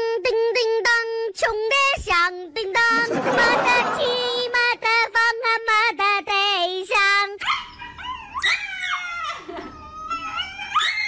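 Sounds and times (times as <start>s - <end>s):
dog yelping and howling: 7.4s - 11.0s.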